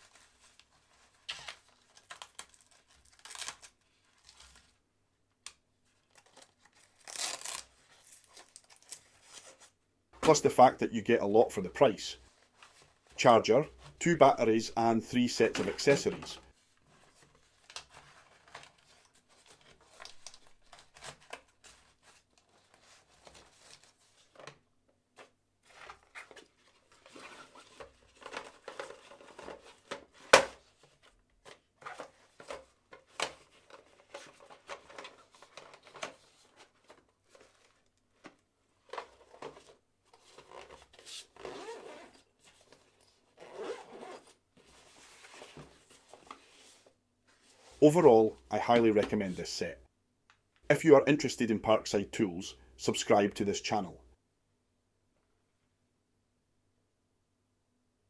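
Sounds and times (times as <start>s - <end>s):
fabric bag rustling and scraping: 38.9s - 47.8s
zipper: 41.4s - 42.2s, 43.4s - 44.4s.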